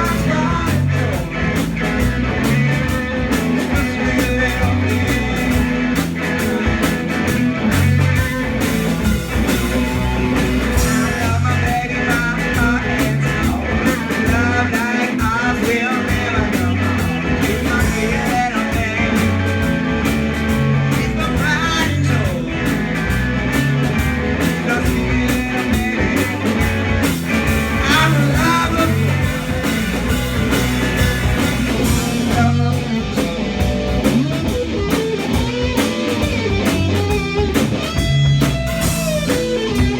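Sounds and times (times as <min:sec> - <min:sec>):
person singing: 0:00.0 - 0:06.6, 0:09.7 - 0:19.7, 0:20.8 - 0:22.9, 0:24.5 - 0:26.7, 0:27.6 - 0:30.1, 0:31.7 - 0:33.8
bass guitar: 0:00.0 - 0:39.9
drums: 0:00.0 - 0:39.9
electric guitar: 0:00.0 - 0:39.9.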